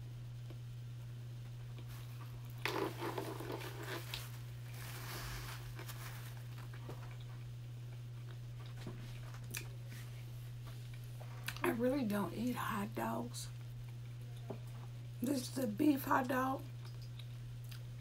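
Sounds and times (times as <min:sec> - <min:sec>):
chewing mouth sounds: 0:06.8 - 0:09.8, 0:16.7 - 0:17.9.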